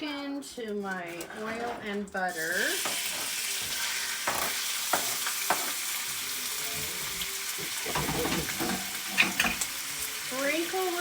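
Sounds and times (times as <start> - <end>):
chicken sizzling in a skillet: 2.3 - 11.0.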